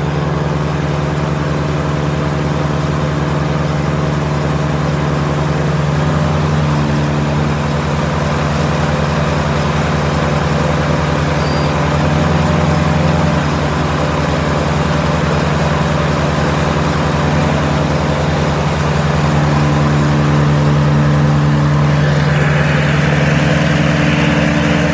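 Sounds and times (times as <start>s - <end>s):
mower diesel engine running: 0.0s - 24.9s
high whine: 17.5s - 24.9s.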